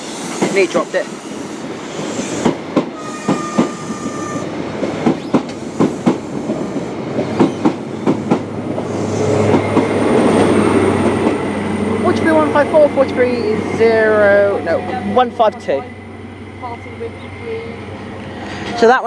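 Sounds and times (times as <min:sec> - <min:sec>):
train wheels clicking over rail joints: 0:00.0 - 0:03.9, 0:04.8 - 0:08.5.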